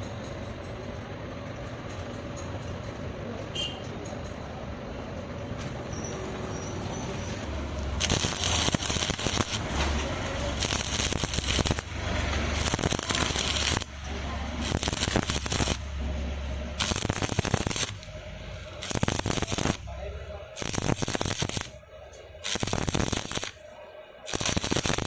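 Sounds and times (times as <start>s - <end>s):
welding arc crackling: 7.0s - 23.7s, 24.3s - 25.0s.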